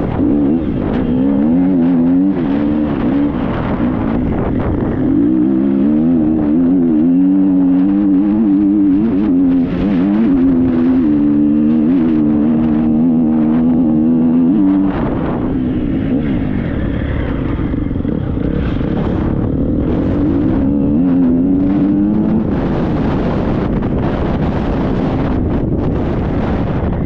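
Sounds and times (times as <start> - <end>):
motocross bike engine revving: 0.0 - 26.8
wind on microphone: 0.0 - 27.0.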